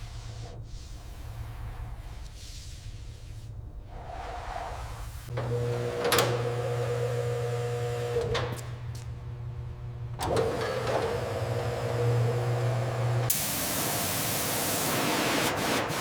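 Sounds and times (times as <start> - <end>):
electric motor humming: 9.2 - 15.2.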